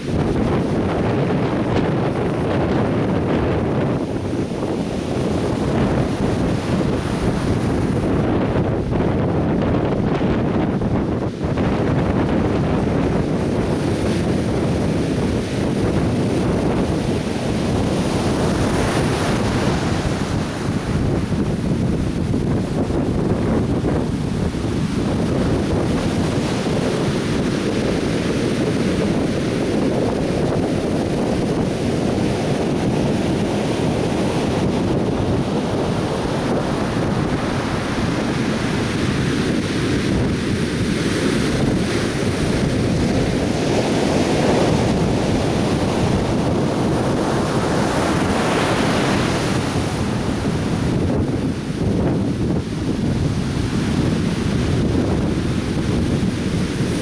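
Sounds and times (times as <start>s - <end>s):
surf breaking on a beach: 0.0s - 57.0s
wind buffeting the microphone: 0.0s - 57.0s.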